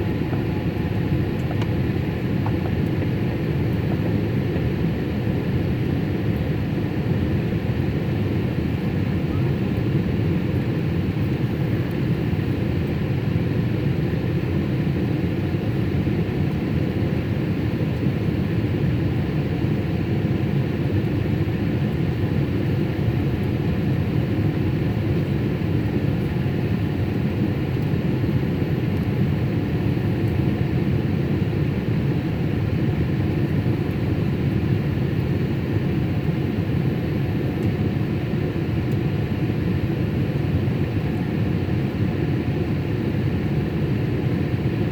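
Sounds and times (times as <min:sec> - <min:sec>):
airliner cabin rumble: 0:00.0 - 0:44.9.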